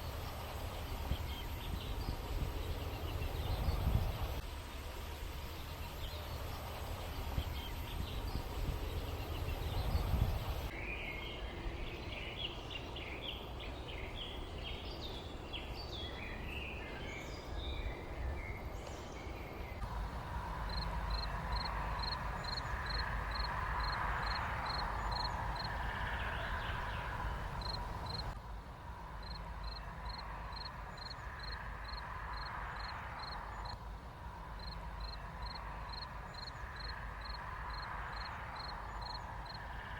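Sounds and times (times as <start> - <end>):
birds chirping: 0.0 - 28.4.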